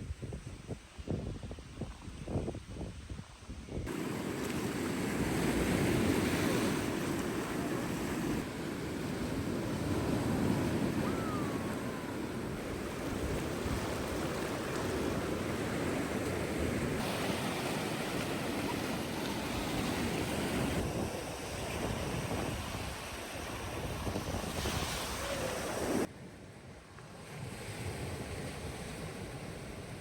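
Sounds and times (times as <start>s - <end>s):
wind rumbling on microphone: 0.0s - 26.1s
sea waves washing onto beach: 3.9s - 26.1s.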